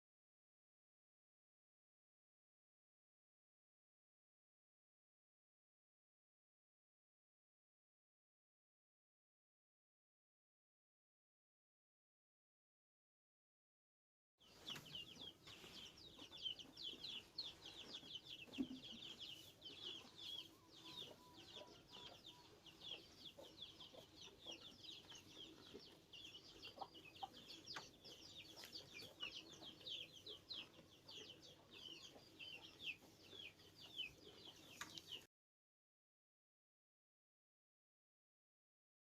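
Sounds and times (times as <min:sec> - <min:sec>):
chicks peeping: 0:14.5 - 0:35.3.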